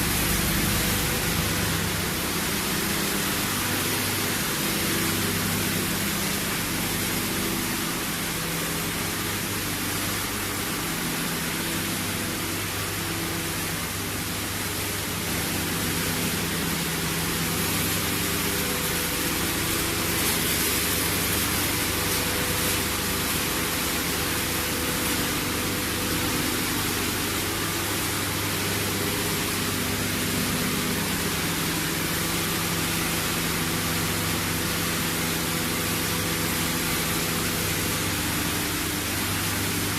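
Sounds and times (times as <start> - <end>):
low mechanical hum: 0.0 - 39.9.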